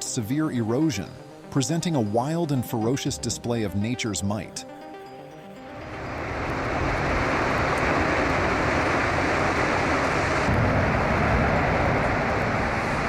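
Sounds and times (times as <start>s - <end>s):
water rushing over waterfall: 5.9s - 13.0s.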